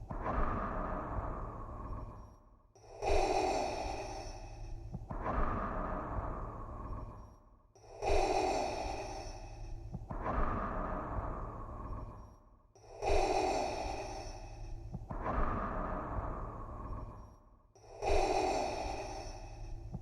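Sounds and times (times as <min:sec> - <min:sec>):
mechanical respirator breathing: 0:17.9 - 0:20.0.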